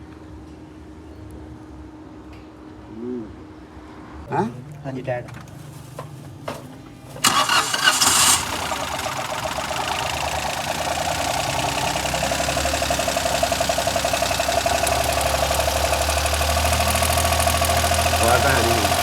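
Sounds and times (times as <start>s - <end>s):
car engine idling: 7.2s - 19.0s
car engine starter cranking: 7.2s - 19.0s.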